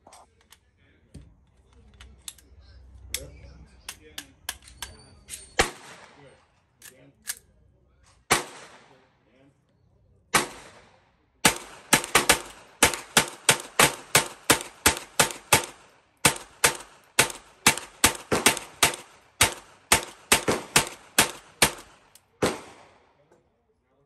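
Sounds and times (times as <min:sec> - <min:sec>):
rifle gunshots: 0:05.6 - 0:06.2, 0:08.3 - 0:09.0, 0:10.3 - 0:23.1.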